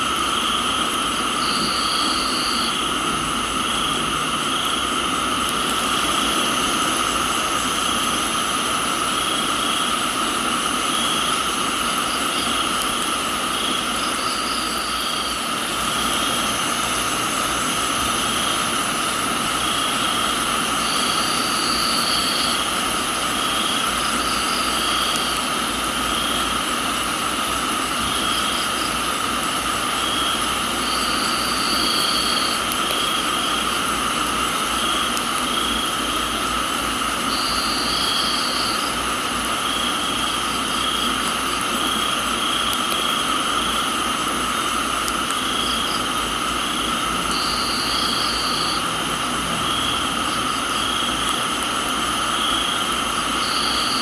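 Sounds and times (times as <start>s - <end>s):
high insect trill: 0.0s - 54.0s
insect chirp: 0.0s - 54.0s
insect drone: 0.0s - 54.0s
steady rain hiss: 0.0s - 54.0s.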